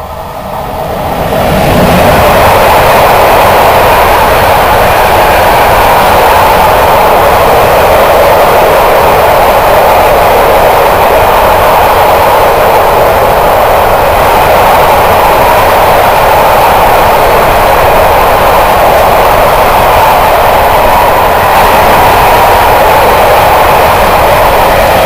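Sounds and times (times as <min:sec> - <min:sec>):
freight train wheels on rails: 0:00.0 - 0:25.0.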